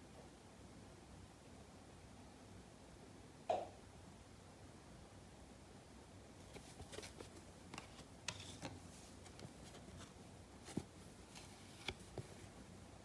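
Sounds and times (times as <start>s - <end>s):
trading cards being handled: 6.5s - 12.6s.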